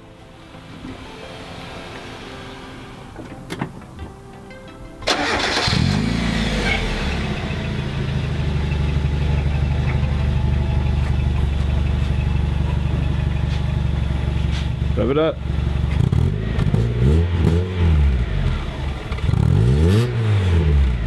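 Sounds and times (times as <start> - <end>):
car engine starting and idling: 0.0 - 21.0.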